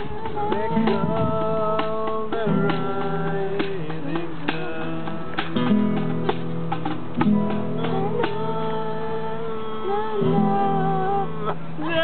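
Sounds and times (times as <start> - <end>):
strummed acoustic guitar: 0.0 - 12.0.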